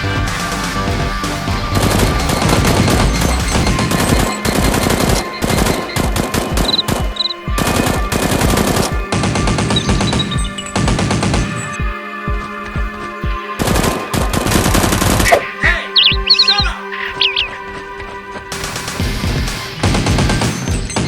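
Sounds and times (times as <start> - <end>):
background music: 0.0 - 21.0
automatic gunfire sound effects: 1.7 - 11.8.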